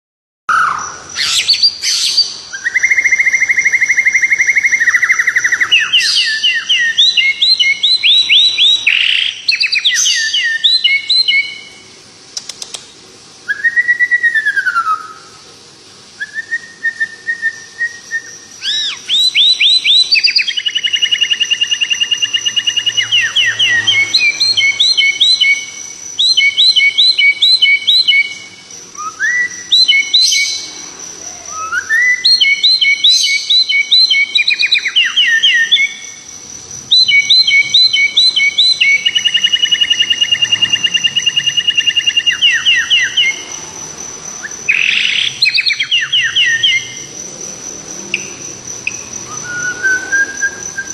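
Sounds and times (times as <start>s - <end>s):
songbird singing trills: 0.5s - 11.8s, 16.2s - 50.9s
slurred falling whistle: 49.3s - 50.9s.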